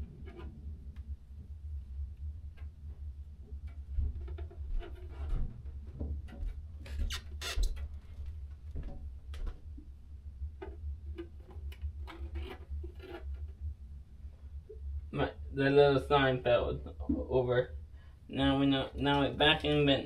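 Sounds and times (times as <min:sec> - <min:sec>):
steady low hum: 0:00.0 - 0:20.0
plastic scratching and clicking: 0:10.6 - 0:13.6.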